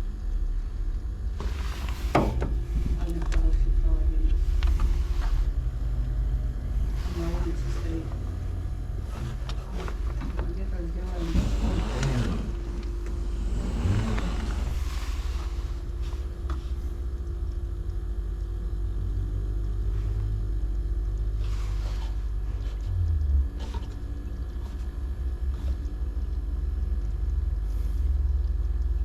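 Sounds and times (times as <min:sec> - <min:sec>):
low uneven rumble: 0:00.0 - 0:29.0
refrigerator compressor humming: 0:00.0 - 0:29.0.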